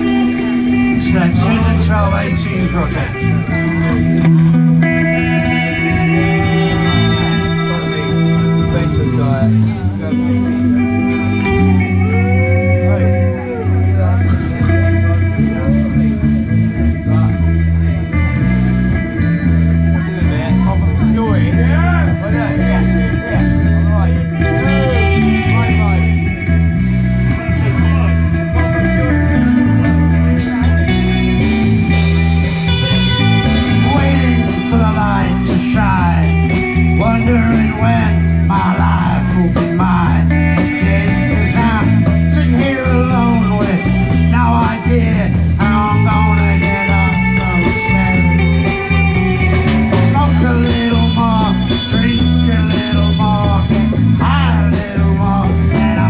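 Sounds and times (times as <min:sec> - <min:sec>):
bass guitar: 0:00.0 - 0:56.0
electric guitar: 0:00.0 - 0:56.0
drums and percussion: 0:26.3 - 0:56.0.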